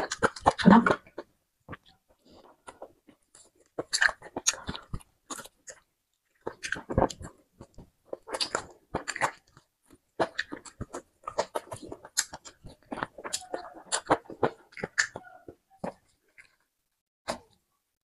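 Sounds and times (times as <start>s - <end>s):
meat chewing: 0.0s - 16.6s
wet mouth clicks and smacks: 10.2s - 15.2s.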